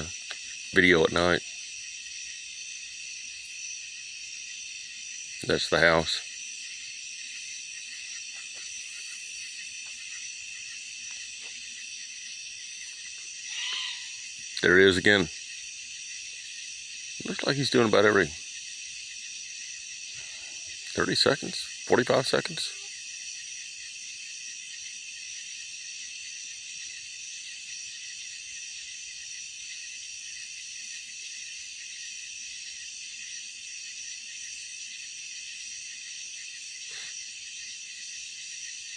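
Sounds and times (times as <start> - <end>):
faint ticks: 0.0 - 0.7, 7.9 - 9.2, 9.8 - 11.7
crickets trilling: 0.0 - 38.9
night insect chorus: 0.0 - 38.9.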